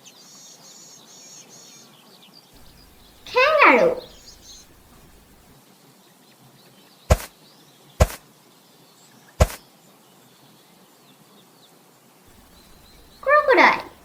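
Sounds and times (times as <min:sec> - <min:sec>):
faint bird chirps: 0:02.6 - 0:05.4, 0:12.4 - 0:14.0.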